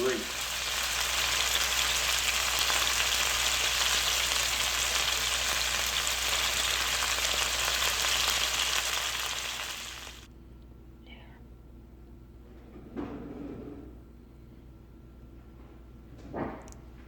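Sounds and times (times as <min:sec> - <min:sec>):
chicken sizzling in a frying pan: 0:00.0 - 0:10.3.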